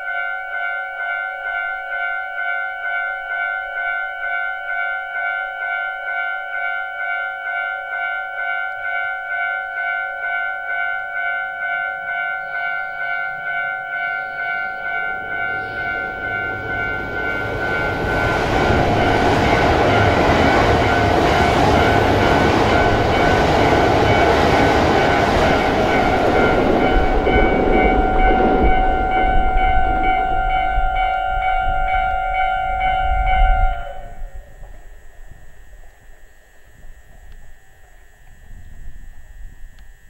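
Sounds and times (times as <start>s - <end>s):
high-speed train passing: 0.0s - 39.7s
steady pulsing camera whine: 14.5s - 40.0s.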